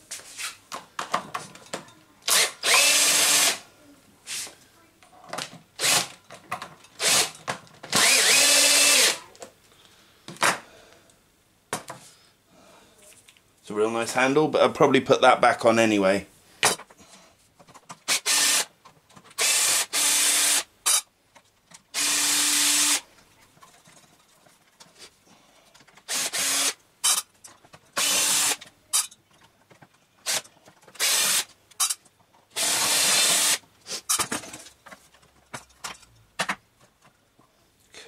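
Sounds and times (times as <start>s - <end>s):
power drill bursts: 2.3s - 3.6s, 5.8s - 6.1s, 7.0s - 7.3s, 7.9s - 9.2s, 18.1s - 18.7s, 19.4s - 21.0s, 21.9s - 23.0s, 26.1s - 27.2s, 28.0s - 28.6s, 31.0s - 31.5s, 32.6s - 33.6s.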